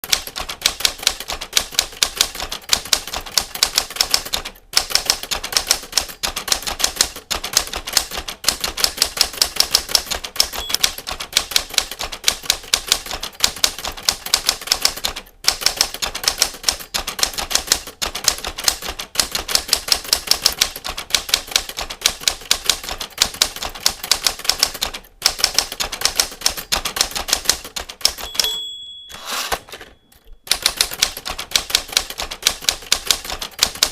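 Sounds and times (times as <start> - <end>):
typewriter keys clicking: 0.0 - 33.9
typewriter bell ringing: 10.5 - 12.0, 28.0 - 30.9.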